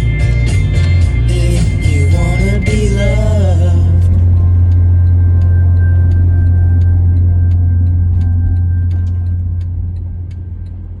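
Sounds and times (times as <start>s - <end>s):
car road and engine rumble: 0.0s - 11.0s
song on car stereo: 0.0s - 11.0s.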